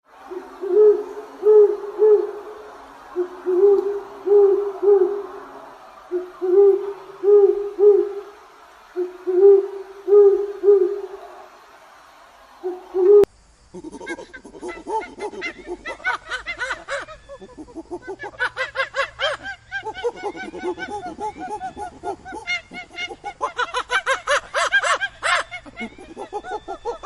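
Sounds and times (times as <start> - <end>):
owl hooting: 0.2 - 11.4, 12.6 - 18.1, 18.7 - 27.0
bird calls: 12.6 - 27.0.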